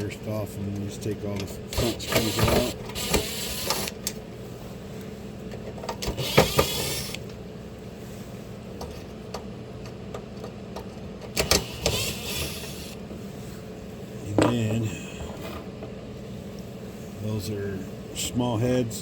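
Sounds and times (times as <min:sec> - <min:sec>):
steady low hum: 0:00.0 - 0:19.0
screwdriver scraping and turning: 0:01.7 - 0:04.1, 0:05.5 - 0:07.3, 0:11.2 - 0:13.0.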